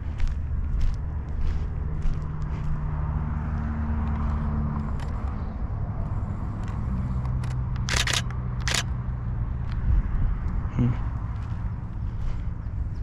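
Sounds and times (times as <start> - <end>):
low engine drone: 0.0 - 13.0
camera shutter clicks: 7.2 - 8.9.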